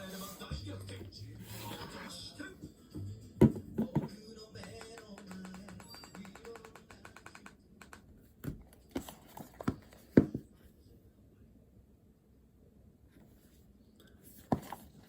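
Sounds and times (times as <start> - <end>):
faint background music: 0.0 - 10.5.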